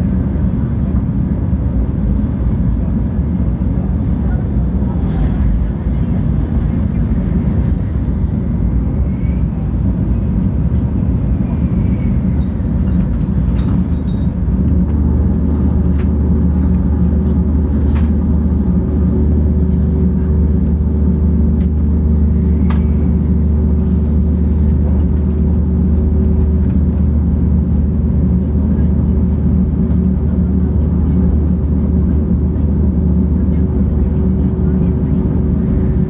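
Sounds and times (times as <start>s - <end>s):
train cabin rumble: 0.0s - 36.0s.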